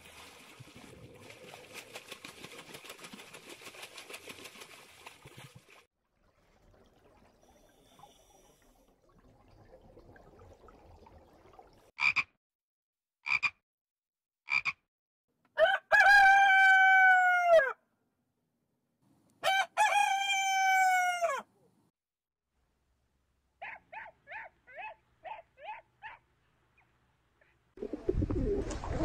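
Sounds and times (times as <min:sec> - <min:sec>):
long falling crowing calls: 0:15.6 - 0:17.8, 0:19.4 - 0:21.5.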